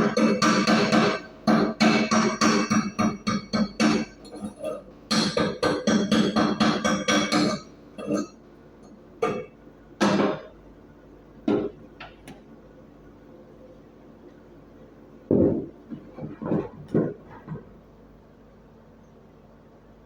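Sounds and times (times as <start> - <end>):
hammer striking steel plate: 0.0 - 4.2, 5.1 - 7.7.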